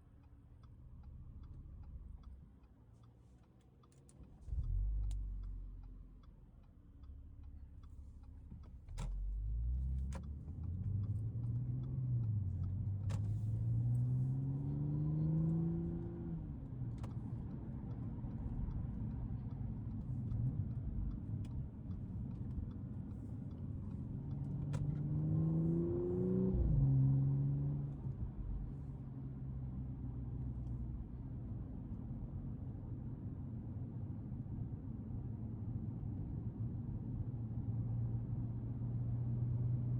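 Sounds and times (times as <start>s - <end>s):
car engine accelerating: 4.4s - 6.2s, 7.0s - 32.6s.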